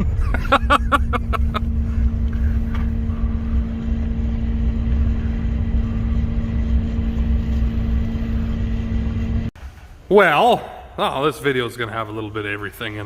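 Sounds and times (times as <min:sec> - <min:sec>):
engine and road rumble: 0:00.0 - 0:10.0
steady droning hum: 0:00.0 - 0:13.0.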